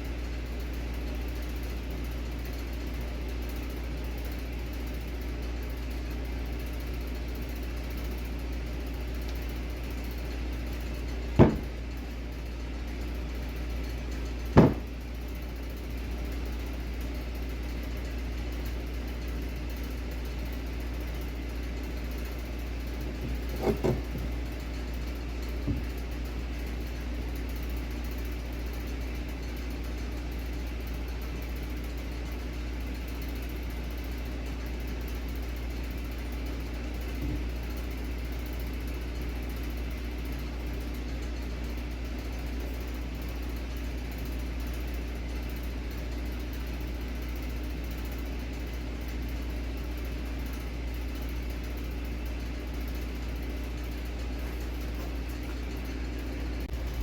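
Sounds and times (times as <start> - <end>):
low mechanical hum: 0.0 - 57.0
faint knock: 11.4 - 11.8, 14.6 - 14.9, 23.2 - 24.4.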